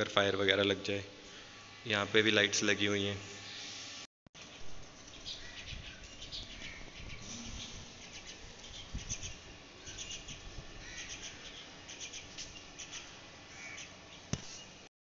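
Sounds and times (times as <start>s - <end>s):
birds chirping: 4.4s - 14.7s.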